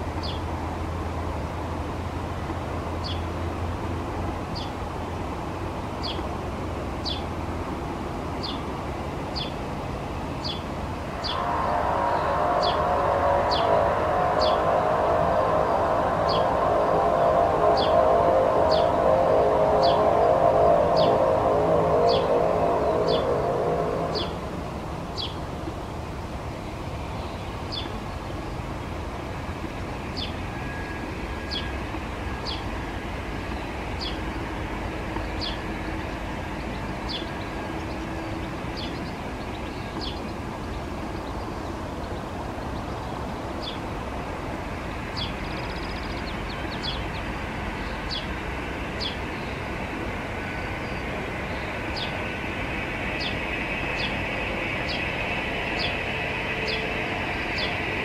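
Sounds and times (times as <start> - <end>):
steady rumbling background: 0.0 - 58.0
bird chirping high notes: 11.2 - 24.6.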